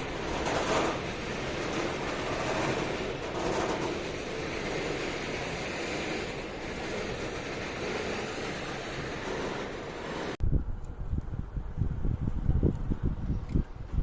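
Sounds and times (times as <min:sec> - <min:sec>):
train rolling rumble: 0:00.0 - 0:14.0.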